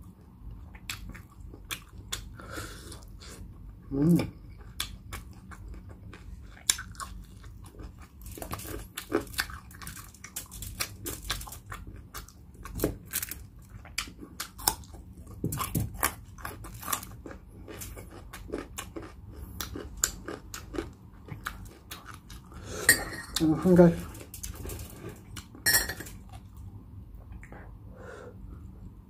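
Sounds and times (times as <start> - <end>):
crunchy chewing: 4.5 - 22.8.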